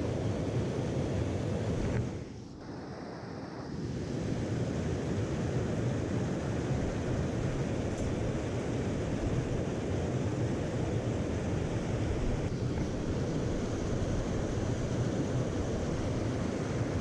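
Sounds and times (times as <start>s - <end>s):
mountain stream rushing: 5.6s - 17.0s.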